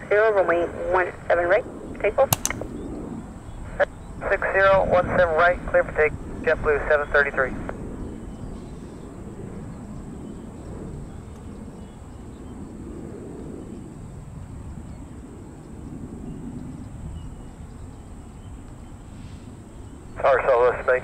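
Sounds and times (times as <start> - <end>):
distant jet engines rumbling: 18.0 - 21.0.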